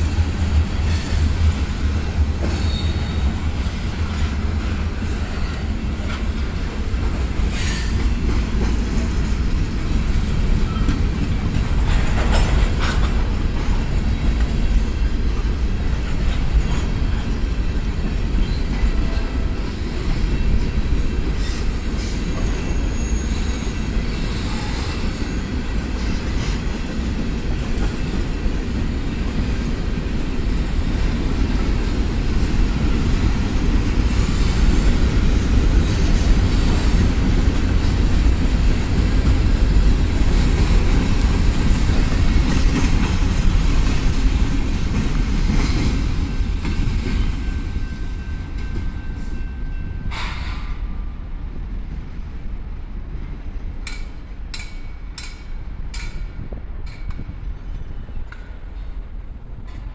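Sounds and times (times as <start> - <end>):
train wheels clickety-clack: 0.0 - 51.2, 53.1 - 59.9
faint wheel squeal: 2.5 - 3.3, 21.4 - 25.4.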